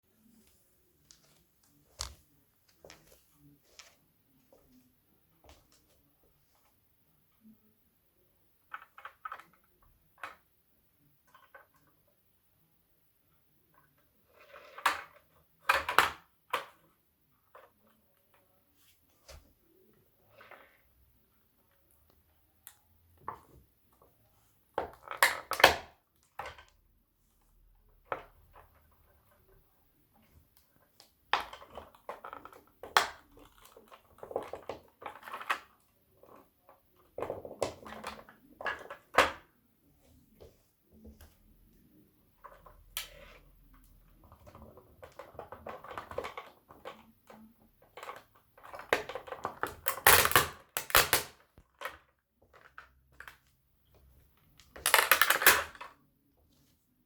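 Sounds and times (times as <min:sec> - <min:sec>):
plastic toys cracking underfoot: 0:47.9 - 0:53.5, 0:54.6 - 0:56.0.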